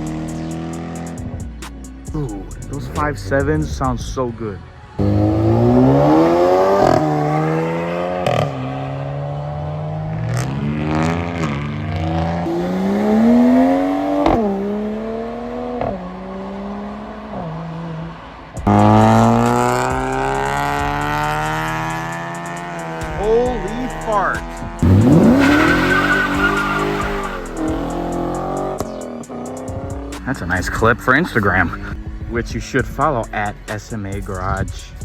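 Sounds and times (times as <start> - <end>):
car engine accelerating hard: 0.0 - 3.8, 4.8 - 34.7
loud engine run: 18.6 - 29.0.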